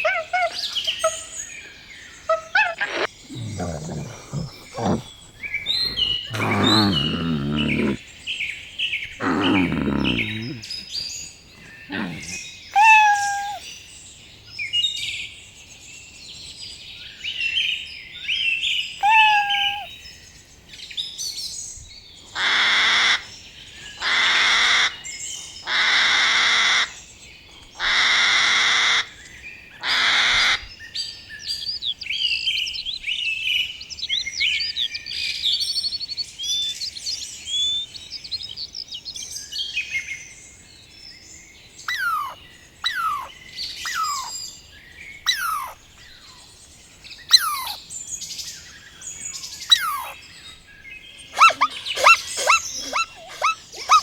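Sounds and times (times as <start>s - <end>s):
harsh bird calls: 0.0s - 8.0s, 9.0s - 13.8s, 19.0s - 20.0s, 36.5s - 39.2s, 41.8s - 46.4s, 47.2s - 47.9s, 48.7s - 50.2s, 51.0s - 54.0s
quick twittering bird chirps: 36.5s - 39.2s, 41.9s - 44.3s.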